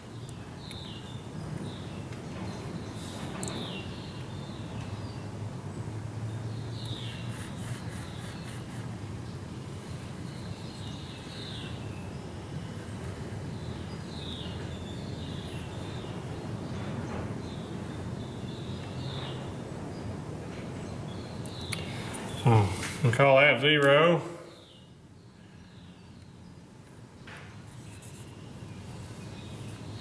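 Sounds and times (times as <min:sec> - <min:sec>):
low background hum: 0:00.0 - 0:30.0
hiss: 0:07.1 - 0:09.0.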